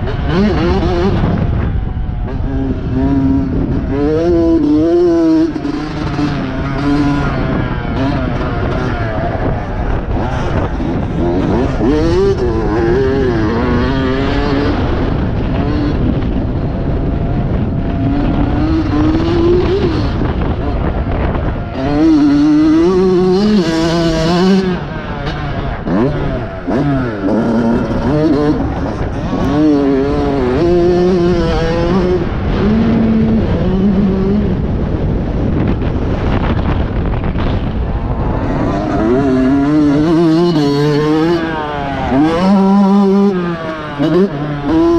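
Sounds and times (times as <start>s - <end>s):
motorcycle engine revving: 0.0s - 44.9s
wind and track noise: 0.0s - 44.9s.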